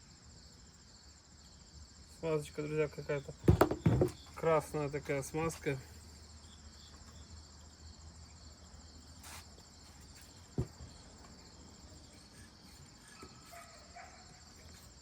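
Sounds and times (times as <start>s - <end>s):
crickets trilling: 0.0s - 15.0s
rustle: 8.3s - 15.0s.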